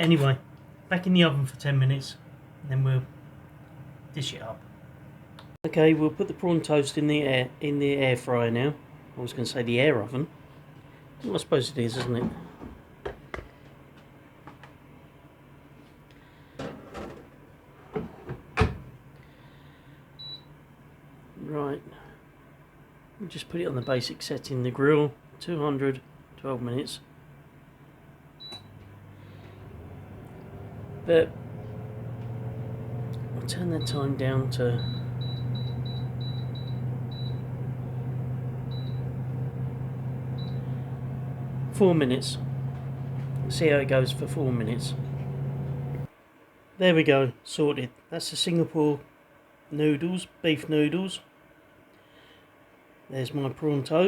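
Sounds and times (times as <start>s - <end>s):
air fryer control panel beeping: 28.4s - 46.1s
steady low hum: 28.4s - 46.1s.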